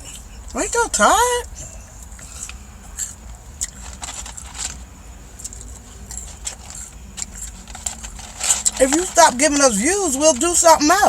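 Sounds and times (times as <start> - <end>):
steady low rumble: 0.0 - 10.8
small objects clicking and rattling: 2.3 - 9.8.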